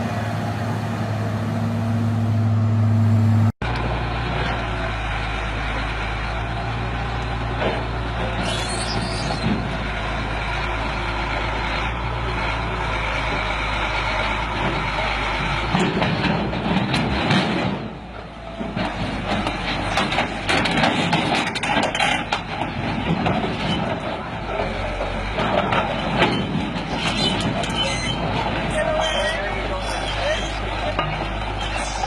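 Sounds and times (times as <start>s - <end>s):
heavy truck engine running: 0.0s - 32.0s
knocks and clatter: 14.5s - 29.0s.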